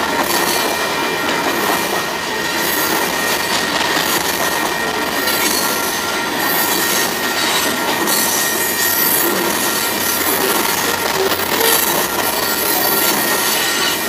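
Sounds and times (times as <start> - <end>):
steel wheels on rails: 0.0 - 14.0
thin wheel squeal: 6.5 - 14.0.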